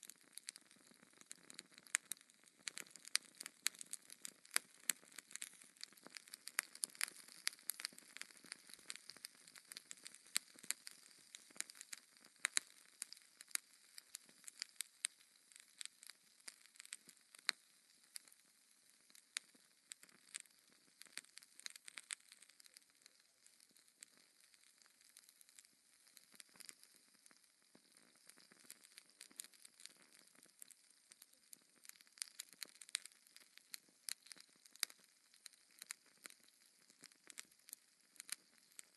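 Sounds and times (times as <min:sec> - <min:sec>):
wood fire pops and snaps: 0:00.0 - 0:38.9.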